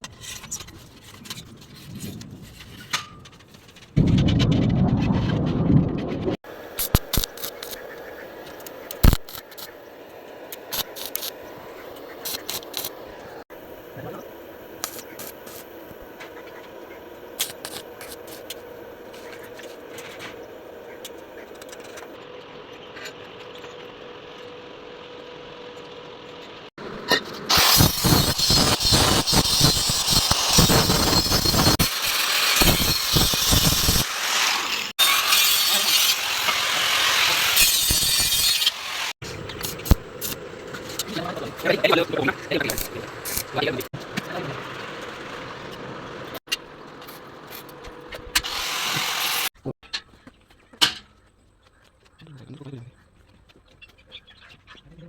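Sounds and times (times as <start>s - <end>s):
metal scraping and clicking: 0.0s - 4.6s
welding arc crackling: 6.5s - 13.4s, 14.5s - 16.6s, 17.2s - 19.9s, 27.5s - 45.5s.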